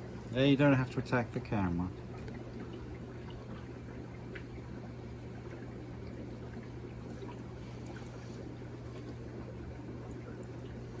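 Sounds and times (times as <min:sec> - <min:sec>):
aquarium filter humming: 0:00.0 - 0:11.0
faint trickling water: 0:00.0 - 0:11.0.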